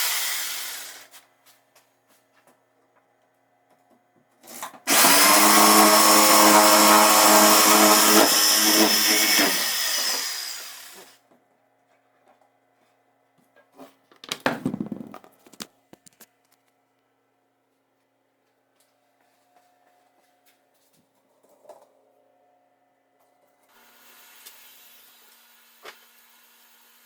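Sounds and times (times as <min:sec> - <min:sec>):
power tool motor whining: 0:00.0 - 0:01.1, 0:04.9 - 0:11.2
knocking and clatter: 0:14.2 - 0:15.4.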